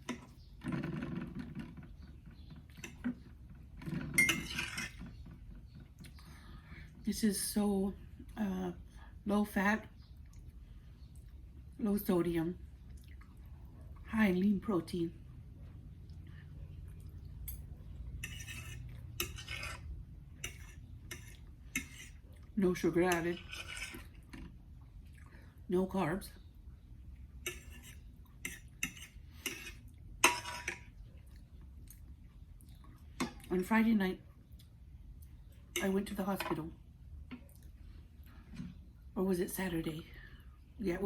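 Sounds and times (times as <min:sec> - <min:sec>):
cutlery clinking on a dish: 0:03.9 - 0:05.0, 0:17.4 - 0:19.8, 0:20.4 - 0:22.2, 0:27.4 - 0:30.8.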